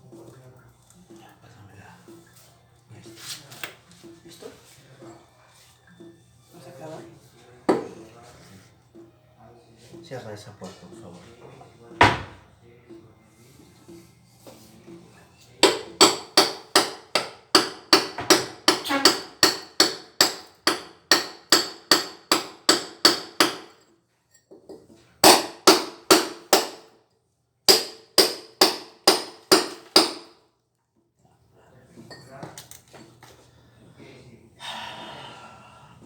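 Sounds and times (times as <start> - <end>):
hammer striking chisel: 15.6 - 23.9, 24.6 - 26.9, 27.7 - 30.4.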